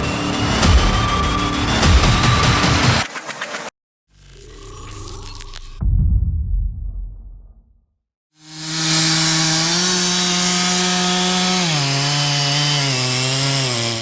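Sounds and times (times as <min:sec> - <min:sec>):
chainsaw cutting wood: 0:08.4 - 0:14.0.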